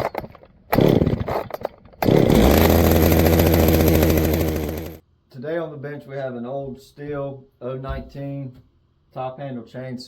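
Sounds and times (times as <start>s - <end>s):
chainsaw engine revving: 0.0s - 5.0s.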